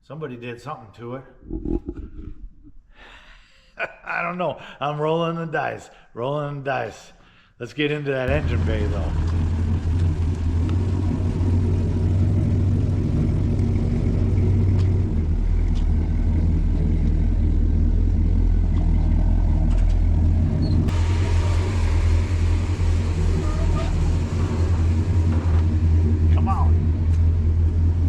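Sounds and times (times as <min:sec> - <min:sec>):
engine running loud and low: 0:08.3 - 0:28.0
hiss: 0:20.9 - 0:25.2.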